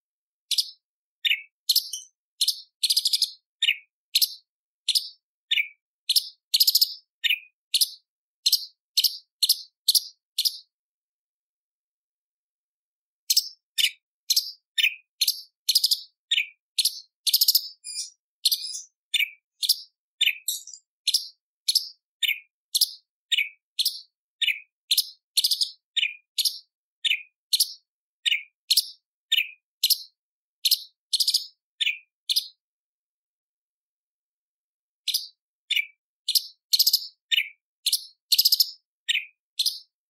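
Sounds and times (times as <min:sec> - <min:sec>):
bird calling in sharp notes: 0:17.6 - 0:19.4, 0:20.2 - 0:21.2.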